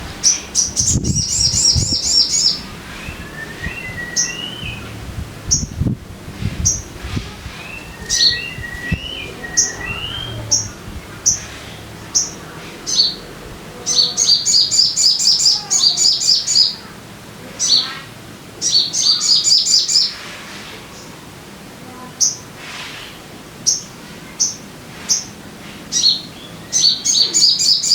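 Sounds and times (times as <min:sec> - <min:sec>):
bird singing chattering trills: 0:00.0 - 0:05.9, 0:06.6 - 0:13.3, 0:13.9 - 0:16.9
low whistled bird notes: 0:00.2 - 0:05.9, 0:06.5 - 0:13.2
low thumps: 0:02.6 - 0:12.1.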